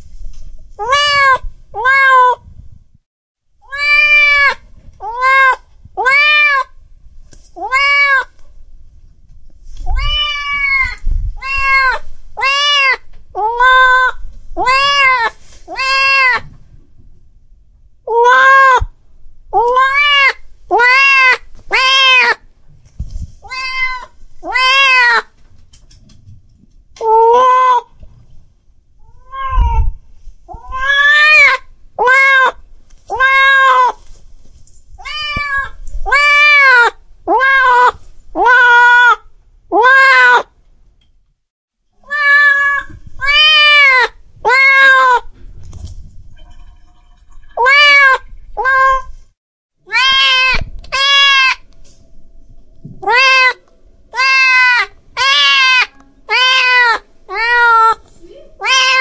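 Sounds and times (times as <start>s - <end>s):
cat meowing: 0.8s - 2.4s, 3.6s - 6.7s, 7.6s - 8.4s, 9.9s - 16.5s, 18.1s - 18.9s, 19.6s - 22.4s, 23.4s - 25.3s, 27.0s - 27.9s, 29.0s - 34.0s, 35.0s - 40.5s, 42.0s - 45.3s, 47.6s - 49.1s, 49.9s - 51.7s, 53.0s - 58.0s, 58.6s - 59.0s.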